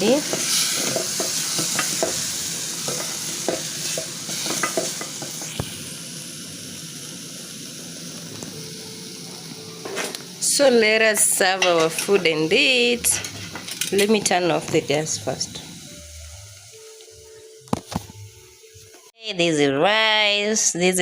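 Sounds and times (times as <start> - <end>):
food sizzling in a pot: 0.0 - 19.1
spoon knocking against pot: 2.9 - 5.4.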